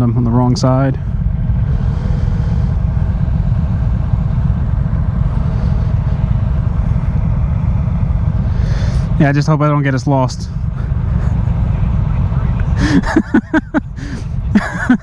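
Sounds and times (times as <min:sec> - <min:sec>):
motorcycle engine low rumble: 0:00.0 - 0:15.0.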